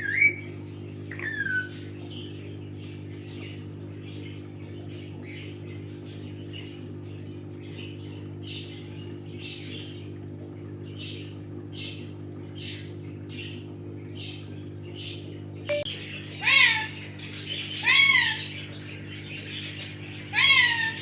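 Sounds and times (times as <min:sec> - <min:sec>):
steady low hum: 0:00.0 - 0:21.0
parrot chirping: 0:01.1 - 0:01.7, 0:15.7 - 0:18.8, 0:20.3 - 0:21.0.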